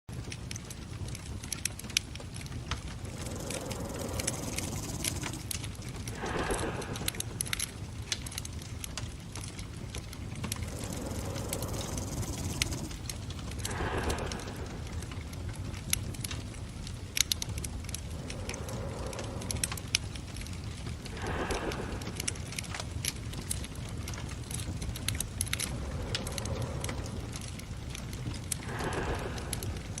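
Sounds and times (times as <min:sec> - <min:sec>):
low purring rumble: 0:00.1 - 0:30.0
wood fire crackling and popping: 0:00.1 - 0:30.0
brief breathy rush: 0:03.0 - 0:07.8, 0:10.4 - 0:15.2, 0:18.0 - 0:20.2, 0:21.1 - 0:22.6, 0:25.6 - 0:30.0.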